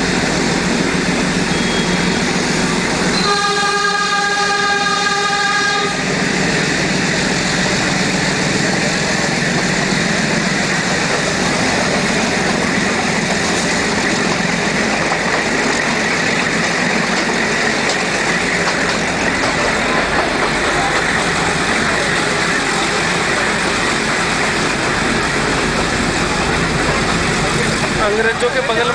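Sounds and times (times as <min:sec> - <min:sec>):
train carriage running on track: 0:00.0 - 0:28.9
train horn: 0:03.1 - 0:06.1.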